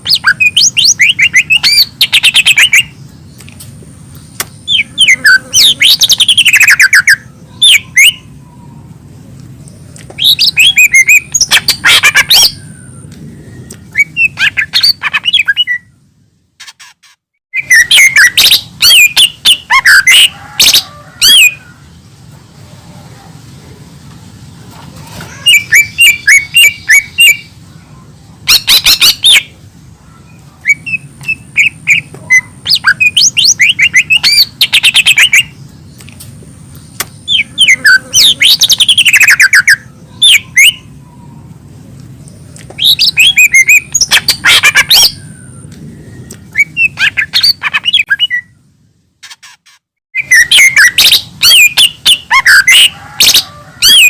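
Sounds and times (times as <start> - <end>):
bird singing chirps and whistles: 0.0 - 3.0, 4.4 - 8.7, 10.1 - 16.0, 17.5 - 21.6, 25.4 - 27.5, 28.5 - 29.5, 30.2 - 35.6, 37.0 - 40.9, 42.7 - 48.6, 50.2 - 54.0.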